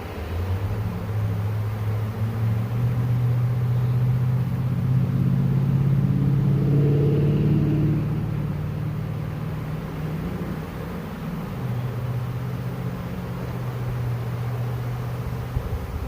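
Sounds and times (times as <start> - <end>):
bee swarm buzzing: 0.0 - 16.0.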